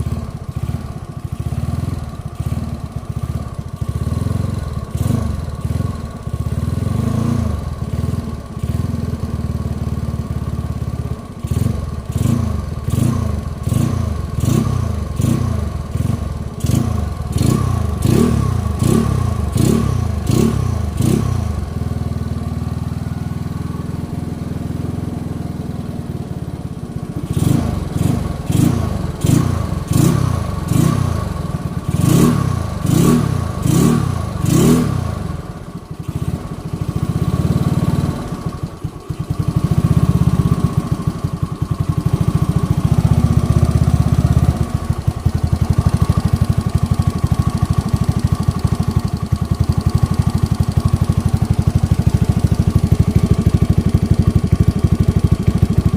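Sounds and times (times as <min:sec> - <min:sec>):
scooter engine idling and revving: 0:00.0 - 0:55.9.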